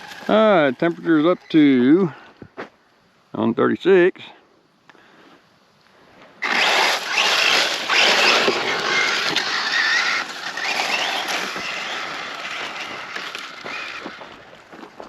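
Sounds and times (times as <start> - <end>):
tires rushing on loose ground: 0.0 - 2.1, 6.4 - 15.0
electric motor whining: 6.4 - 14.4.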